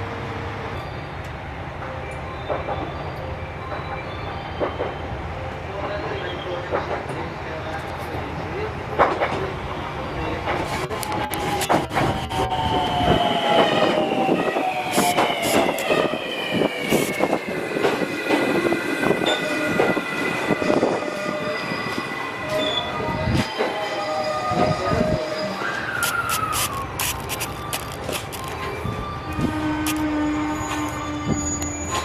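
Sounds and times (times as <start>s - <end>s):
train whine: 0.0s - 32.0s
train wheels clicking: 14.8s - 16.1s.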